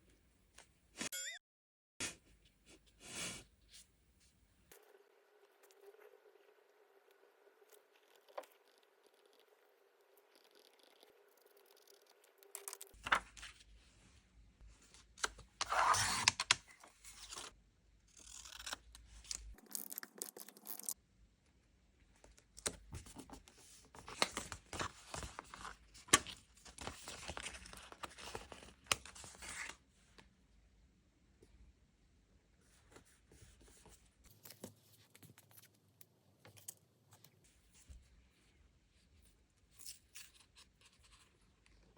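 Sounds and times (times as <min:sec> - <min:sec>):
paper and stickers rustling: 0:12.6 - 0:13.7, 0:22.5 - 0:29.7.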